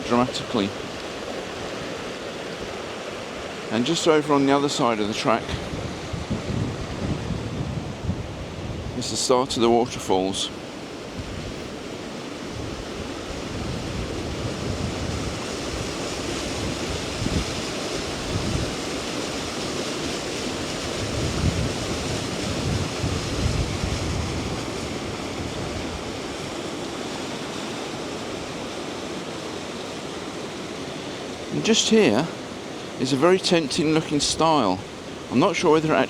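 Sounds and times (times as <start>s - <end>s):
waterfall rushing: 0.0s - 36.0s
wind buffeting microphone: 5.3s - 29.4s.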